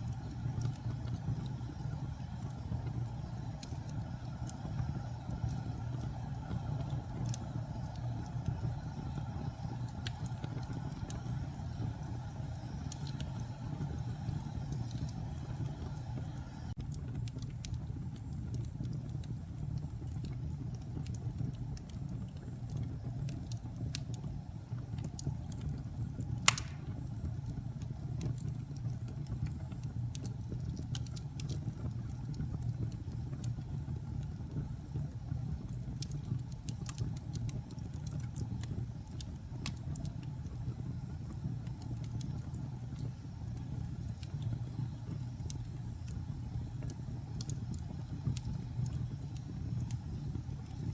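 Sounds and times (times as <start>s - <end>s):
fire low rumble: 0.0s - 50.9s
wood fire crackling: 0.0s - 50.9s
fire pop: 26.3s - 27.4s.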